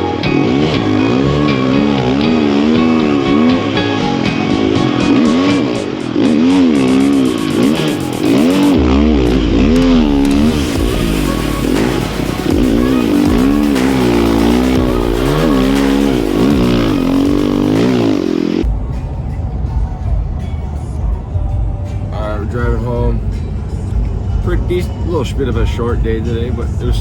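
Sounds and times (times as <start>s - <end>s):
dirt-bike engine revving: 0.0s - 18.7s.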